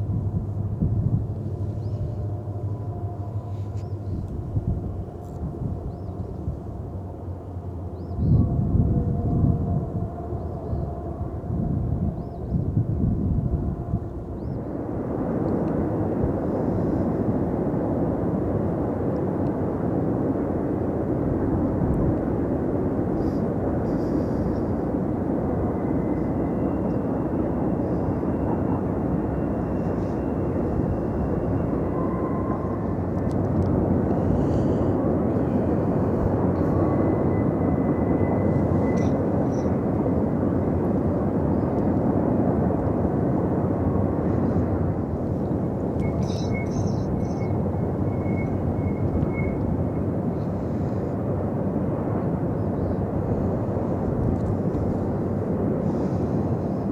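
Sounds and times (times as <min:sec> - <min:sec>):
freight train rumbling past: 0:00.0 - 0:56.9
faint high squeal: 0:23.2 - 0:33.1, 0:34.2 - 0:40.4, 0:46.0 - 0:51.0.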